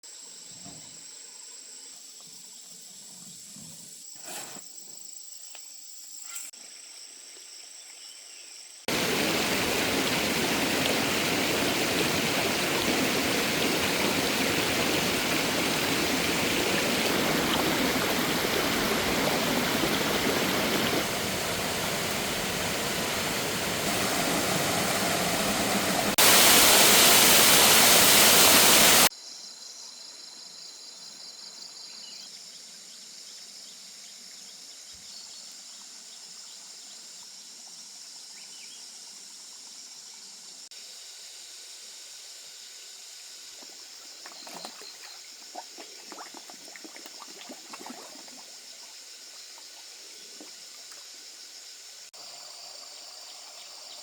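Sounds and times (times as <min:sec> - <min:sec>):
loud rush of water: 0:08.9 - 0:29.1.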